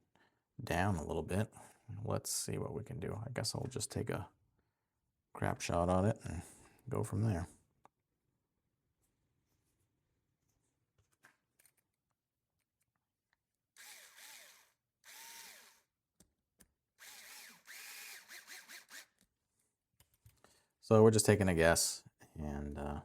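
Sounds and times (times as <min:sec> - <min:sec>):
power screwdriver whirring: 0:13.8 - 0:15.9, 0:17.0 - 0:19.2.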